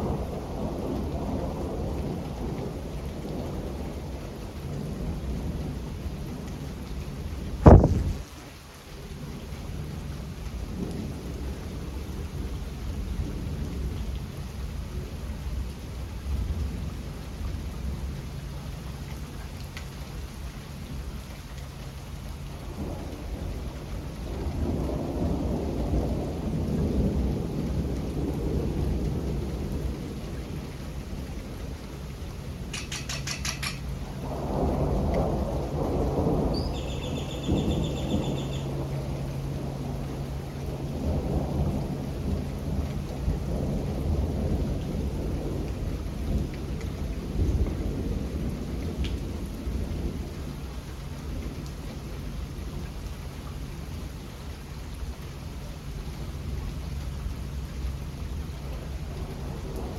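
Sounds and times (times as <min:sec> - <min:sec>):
rolling thunder rumbles: 0:00.0 - 0:18.4, 0:21.8 - 0:53.1, 0:56.0 - 0:59.9
steady rain: 0:00.0 - 0:59.9
loud thunderclap: 0:07.6 - 0:08.4, 0:33.4 - 0:36.8, 0:37.5 - 0:50.2.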